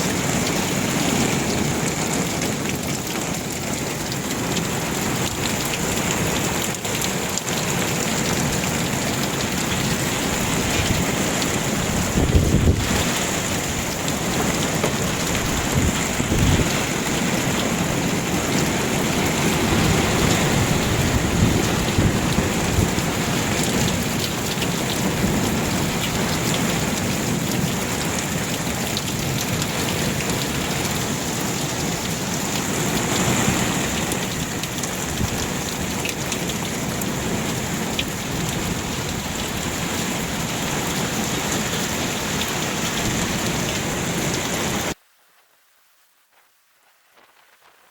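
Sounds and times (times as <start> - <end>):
heavy rain pouring: 0.0 - 45.0
low thunder rumbling: 10.0 - 27.4.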